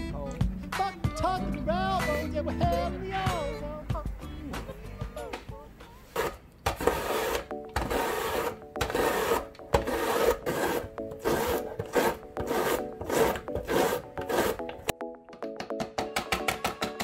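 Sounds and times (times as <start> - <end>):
zucchini scraping over slicer blades: 6.1 - 14.9.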